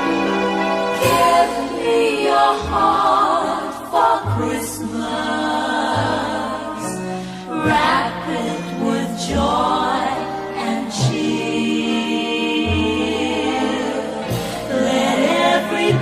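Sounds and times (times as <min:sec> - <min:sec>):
low accompanying notes: 0:00.0 - 0:16.0
voices singing held notes: 0:00.0 - 0:16.0.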